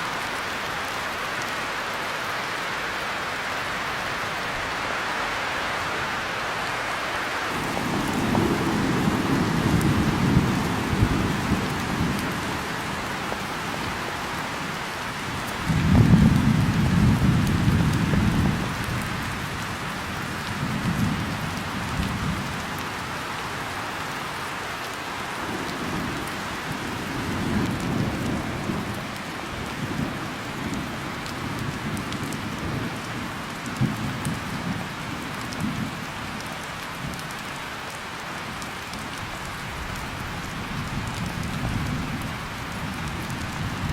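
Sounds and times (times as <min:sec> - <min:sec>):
heavy rain: 0:00.0 - 0:43.9
rolling thunder: 0:07.5 - 0:13.1, 0:15.6 - 0:19.3.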